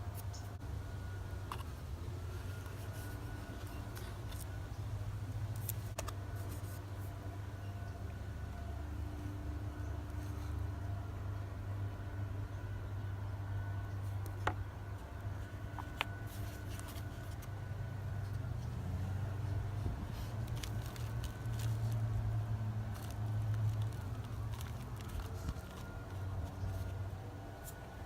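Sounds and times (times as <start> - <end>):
low background hum: 0.0 - 28.0
plastic trays and soil rustling: 15.5 - 17.5, 18.3 - 28.0.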